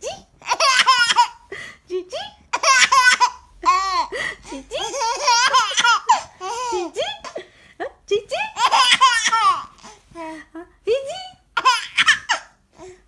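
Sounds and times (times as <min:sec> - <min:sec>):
baby laughing and squealing: 0:08.6 - 0:09.8.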